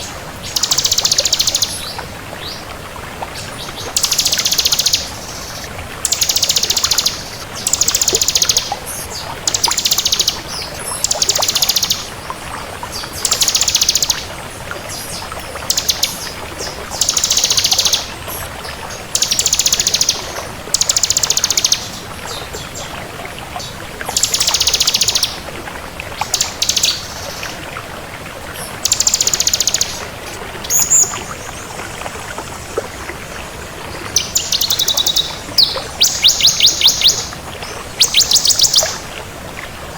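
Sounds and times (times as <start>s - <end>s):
bird singing rapid trills: 0.5s - 1.9s, 4.0s - 10.4s, 11.0s - 12.1s, 13.2s - 14.3s, 15.7s - 18.1s, 19.1s - 22.4s, 24.2s - 25.4s, 26.2s - 27.4s, 28.8s - 30.0s, 30.6s - 31.3s, 34.2s - 37.4s, 38.0s - 39.0s.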